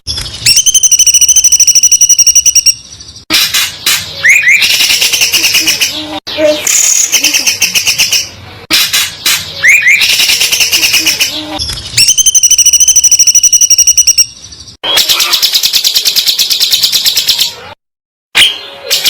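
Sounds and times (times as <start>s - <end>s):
songbird trills and whistles: 4.2s - 6.0s.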